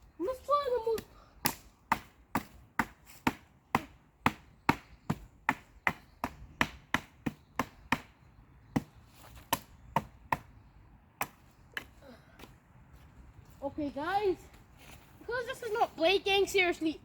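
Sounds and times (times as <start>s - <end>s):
wood being struck: 1.4s - 10.5s.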